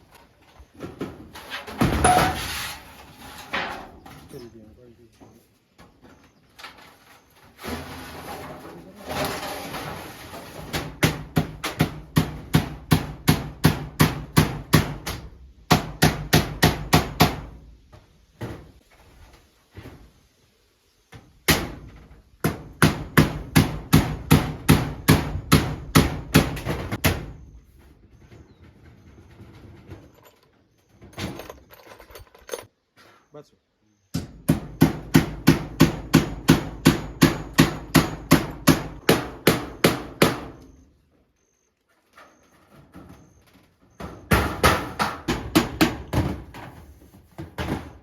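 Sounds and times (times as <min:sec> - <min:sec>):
hammering blows: 0:10.7 - 0:17.6, 0:21.2 - 0:27.6, 0:34.1 - 0:40.8, 0:44.0 - 0:46.4.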